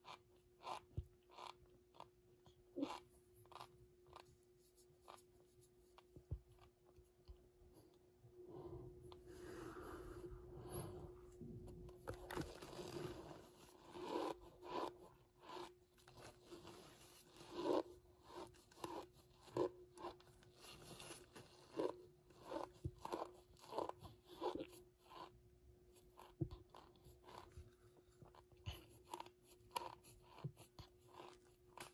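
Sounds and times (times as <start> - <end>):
cornstarch crunching and chewing: 0.0 - 5.3, 12.1 - 31.9.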